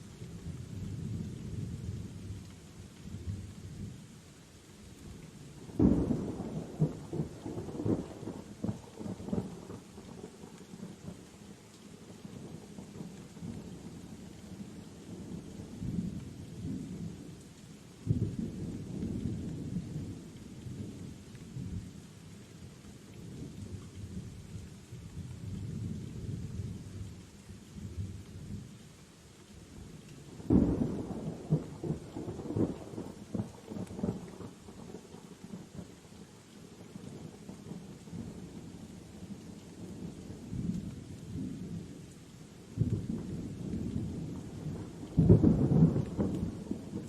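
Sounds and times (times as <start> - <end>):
steady rain: 0.0 - 47.0
crackling thunder clap: 5.7 - 11.2, 30.3 - 35.6, 42.8 - 47.0
rolling thunder: 42.8 - 47.0.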